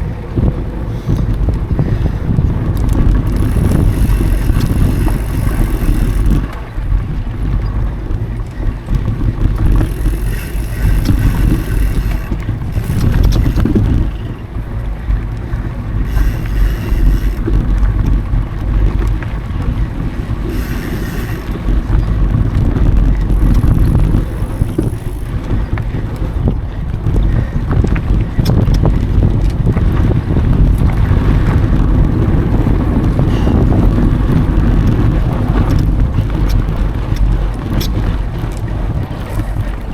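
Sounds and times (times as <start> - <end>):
bike clicks and rattles: 0.0 - 39.9
bike tyres rumbling on dirt: 0.0 - 39.9
wind buffeting on microphone: 0.0 - 39.9.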